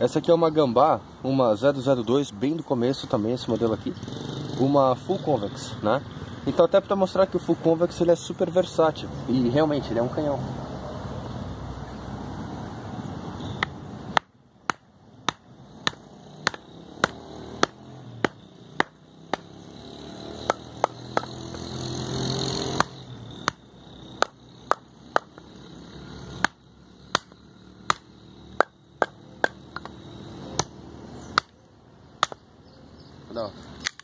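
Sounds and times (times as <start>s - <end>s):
sharp knocks on knife spine: 13.6s - 19.5s
wood splitting: 13.6s - 19.5s, 20.4s - 21.9s, 22.6s - 23.6s, 26.4s - 30.0s, 33.8s - 34.0s.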